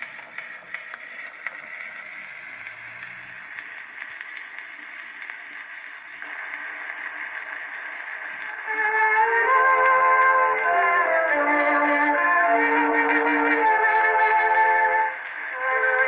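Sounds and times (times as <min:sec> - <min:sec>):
phonograph surface hiss: 0:00.0 - 0:16.0
record crackles and ticks: 0:00.0 - 0:16.0.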